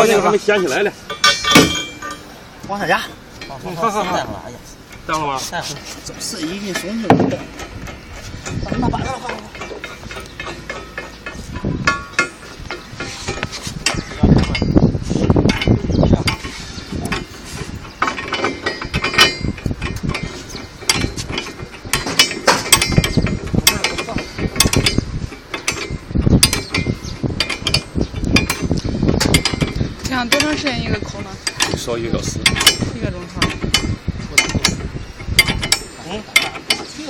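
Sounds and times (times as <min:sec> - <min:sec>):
heavy knocks on metal: 0:01.1 - 0:02.3, 0:06.7 - 0:17.3
ratchet-like clicks and clanks: 0:06.8 - 0:37.0.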